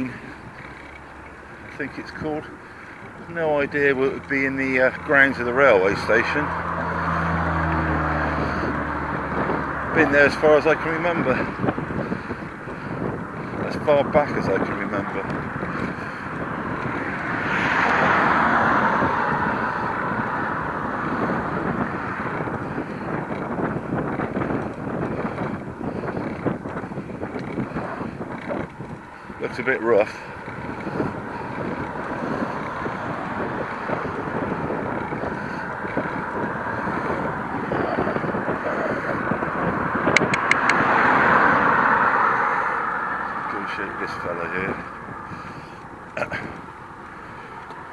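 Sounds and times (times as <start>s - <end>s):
vehicle passing by: 0.0s - 47.9s
wind noise on microphone: 1.5s - 47.9s
quick clicks: 40.1s - 40.8s.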